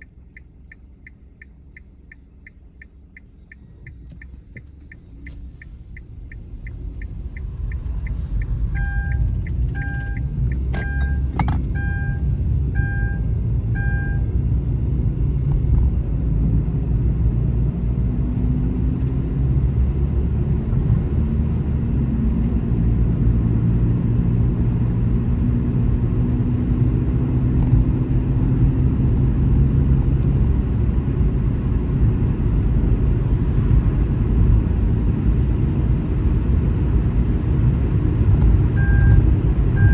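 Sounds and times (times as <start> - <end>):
road and engine rumble: 0.0 - 39.9
short two-tone beeps: 7.7 - 14.3, 38.8 - 39.2.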